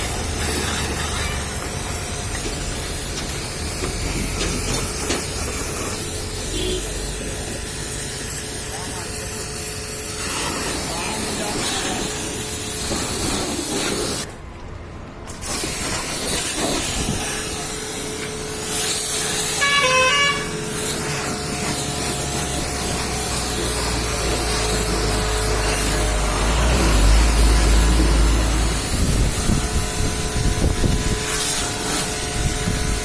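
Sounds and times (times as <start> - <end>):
pressure washer jet spraying: 0.0 - 14.3, 15.3 - 33.0
short horn toot: 6.5 - 7.0, 19.6 - 20.6.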